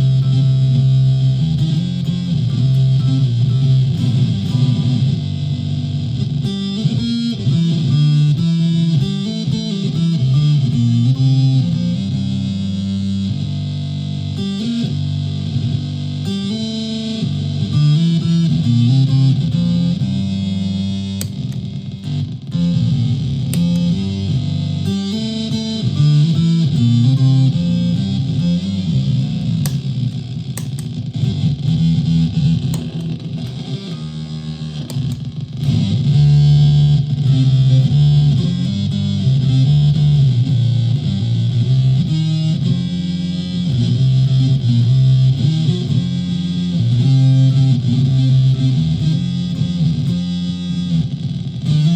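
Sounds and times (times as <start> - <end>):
electric ukulele playing: 0.0 - 5.7, 15.5 - 42.9.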